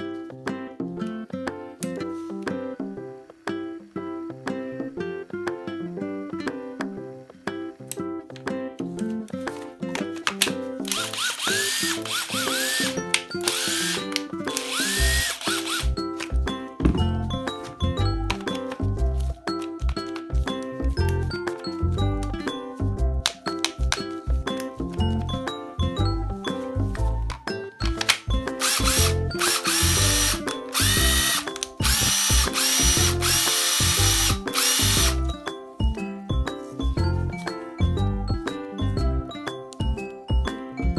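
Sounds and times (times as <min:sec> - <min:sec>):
background music: 0:00.0 - 0:40.9
cordless driver motor whine: 0:10.9 - 0:15.9, 0:28.6 - 0:35.3.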